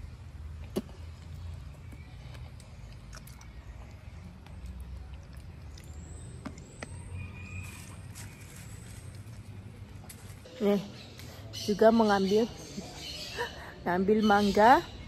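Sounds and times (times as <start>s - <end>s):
fruit being chewed: 0.6s - 7.4s
wet mouth clicks: 2.3s - 6.6s.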